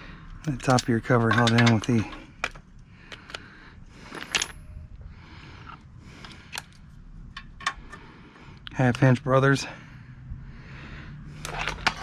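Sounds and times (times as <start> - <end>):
hand tools and bolts clinking: 0.3 - 3.4, 4.0 - 4.8, 11.4 - 12.0.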